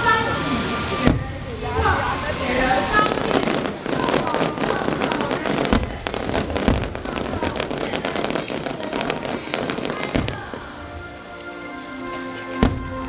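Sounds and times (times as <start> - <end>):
fireworks crackling and banging: 0.0 - 13.0
music with held notes: 10.6 - 13.0.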